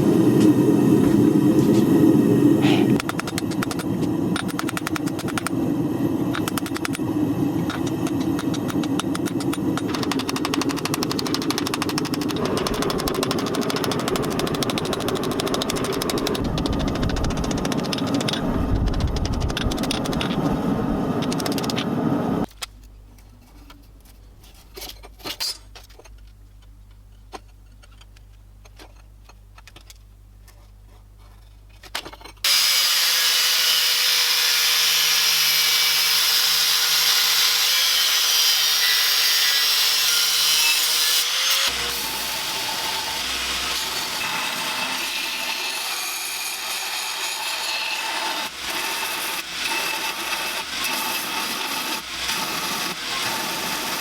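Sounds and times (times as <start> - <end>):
low hum: 5.4 - 22.5
grinder on knife steel: 7.8 - 20.5, 32.4 - 54.0.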